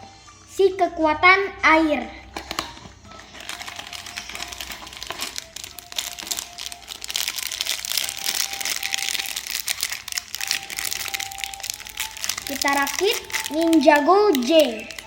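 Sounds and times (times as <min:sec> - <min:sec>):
plastic packaging crinkling: 0:02.3 - 0:15.0.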